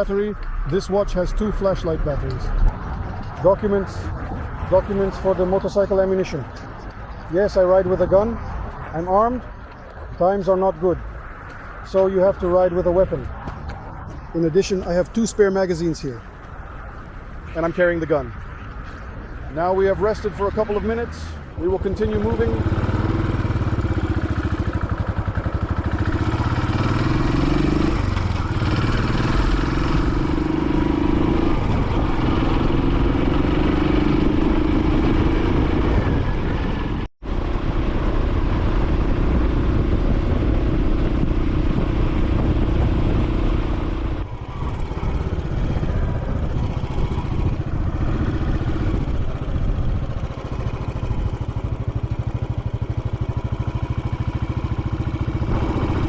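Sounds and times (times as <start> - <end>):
motorcycle engine accelerating: 19.7 - 56.0.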